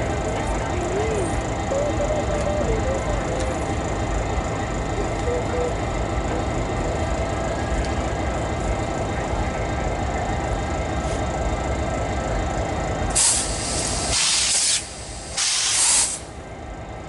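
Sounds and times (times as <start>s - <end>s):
diesel locomotive idling: 0.0s - 17.0s.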